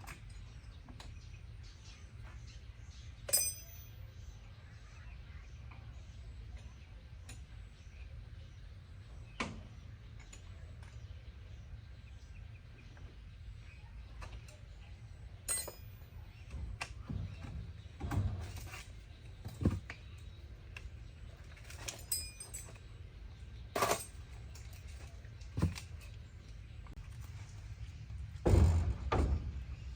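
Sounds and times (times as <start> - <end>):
clinks and knocks: 3.3 - 4.0, 15.4 - 20.4, 21.4 - 23.0, 23.7 - 27.0, 28.2 - 29.9.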